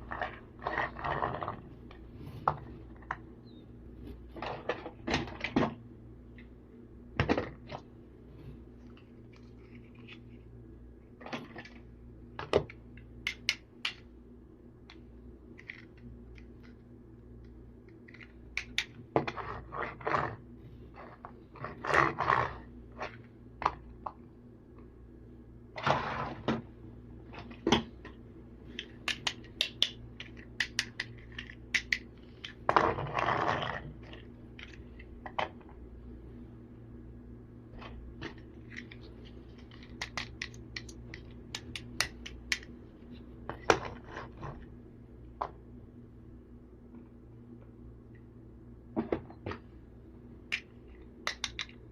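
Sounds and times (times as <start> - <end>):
plastic toy scraping: 0.0 - 2.4, 19.2 - 23.2, 32.7 - 34.8
steady low hum: 0.0 - 51.9
plastic toy clicks and knocks: 28.7 - 32.6, 50.5 - 51.8.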